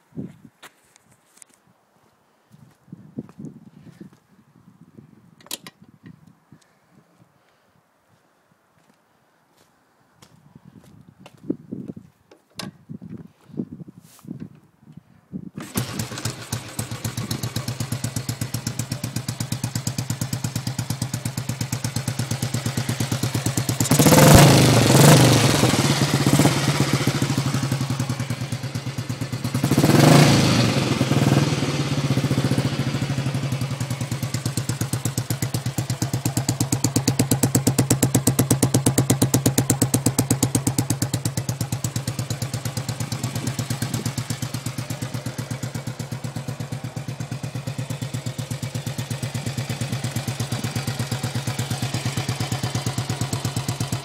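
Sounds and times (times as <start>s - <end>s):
motorcycle engine idling: 15.6s - 54.0s
motorcycle engine revving: 15.6s - 54.0s.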